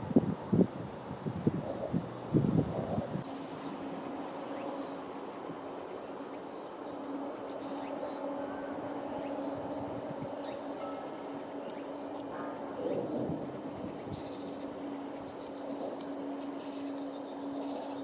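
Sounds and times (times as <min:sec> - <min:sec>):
crickets chirping: 0:00.0 - 0:18.0
faint steady hum: 0:00.0 - 0:18.0.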